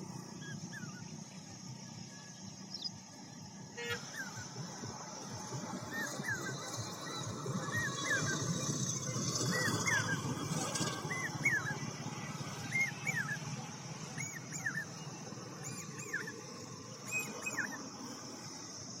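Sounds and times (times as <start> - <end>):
hawk-cuckoo calling: 3.7 - 18.0.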